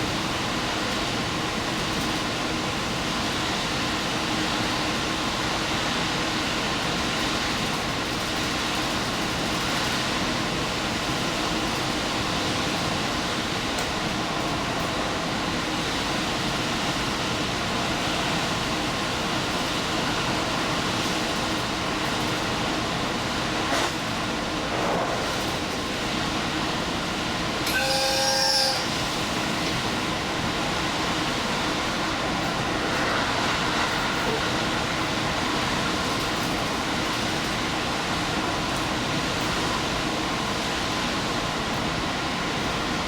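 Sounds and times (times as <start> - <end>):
train wheels rumbling on rails: 0.0 - 43.0
short high ringing tone: 27.7 - 29.0.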